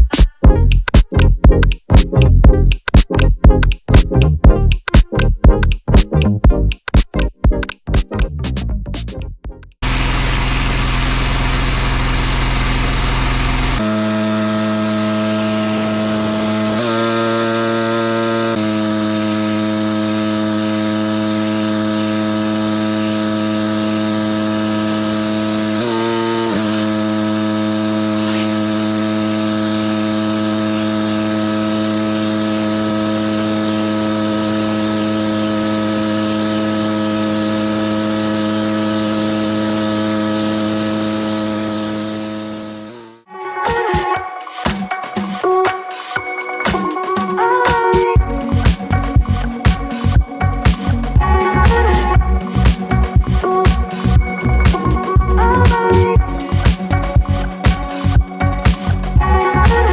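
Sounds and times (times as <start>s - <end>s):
high-pressure spray hissing: 9.8s - 43.2s, 48.6s - 55.0s
pressure washer motor: 9.8s - 43.3s, 48.2s - 59.9s.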